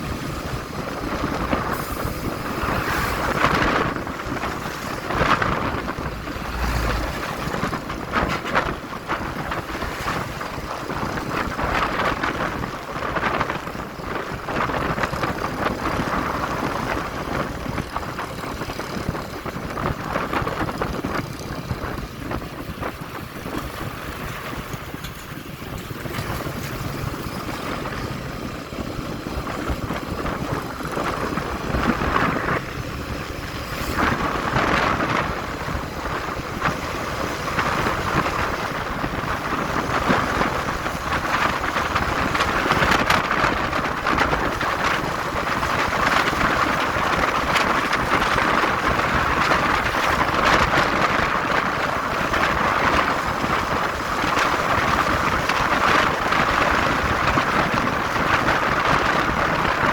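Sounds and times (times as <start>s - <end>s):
road noise: 0.0s - 59.9s
wind rushing over microphone: 0.0s - 59.9s.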